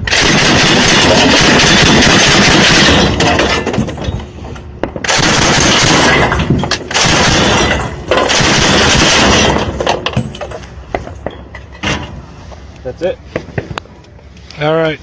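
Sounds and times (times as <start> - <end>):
machine gun automatic fire: 0.0 - 3.7, 5.0 - 9.8.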